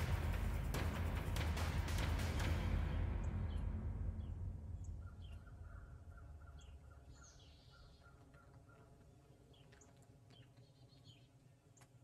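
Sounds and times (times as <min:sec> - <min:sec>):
faint birds chirping: 0:02.6 - 0:12.0.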